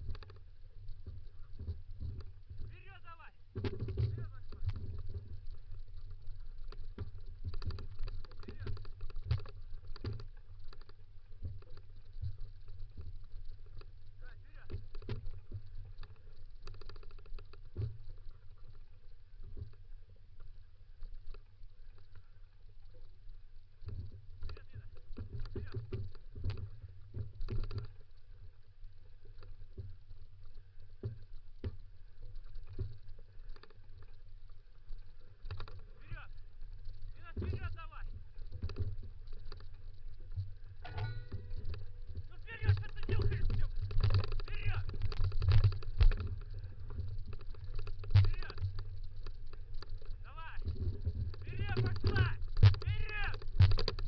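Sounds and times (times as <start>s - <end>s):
scooter rolling over dirt trail: 0.0s - 3.0s, 35.5s - 54.0s
kick scooter rolling on dirt trail: 0.0s - 54.0s
wheels and frame rattling: 0.0s - 54.0s
knocks and rattles: 1.0s - 13.1s, 40.3s - 54.0s.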